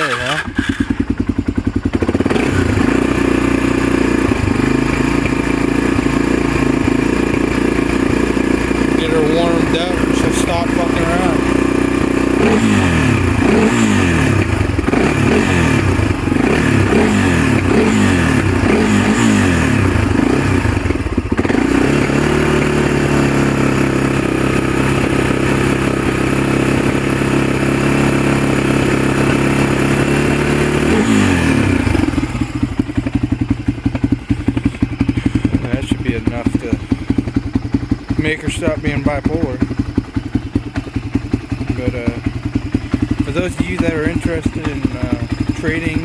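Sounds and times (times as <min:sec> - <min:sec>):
engine throttle blips and idle: 0:00.0 - 0:46.0.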